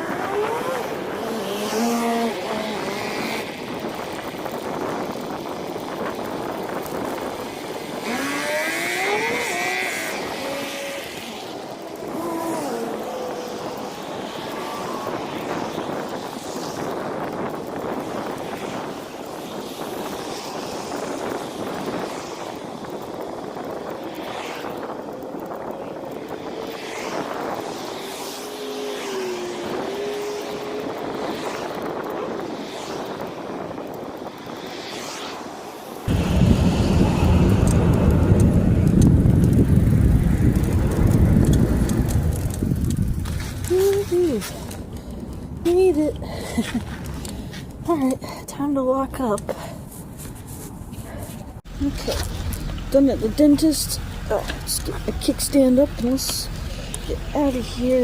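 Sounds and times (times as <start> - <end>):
road noise: 0.0 - 58.0
wind buffeting microphone: 0.0 - 58.0
vehicle engine passing: 36.0 - 47.6.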